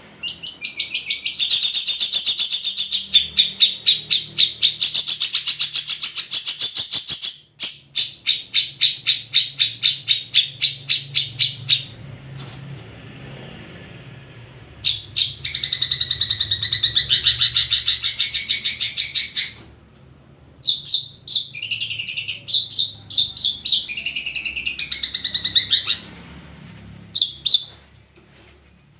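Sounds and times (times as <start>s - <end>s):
shrike singing: 20.6s - 26.1s.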